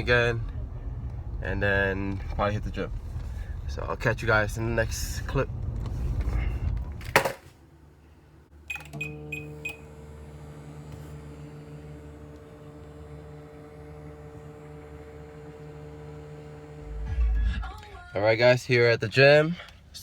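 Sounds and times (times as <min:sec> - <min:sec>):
microwave oven humming: 0:08.5 - 0:17.8
keypad beeps: 0:08.7 - 0:09.8.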